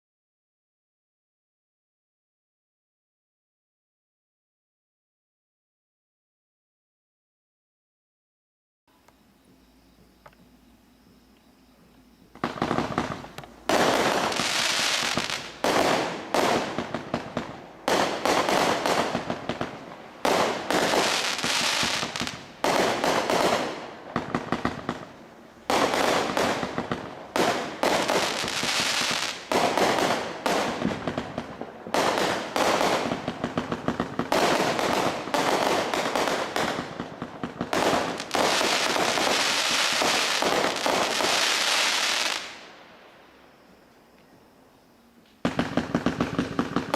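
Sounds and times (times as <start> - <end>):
firework cake firing volleys: 12.4 - 42.6, 45.5 - 46.9.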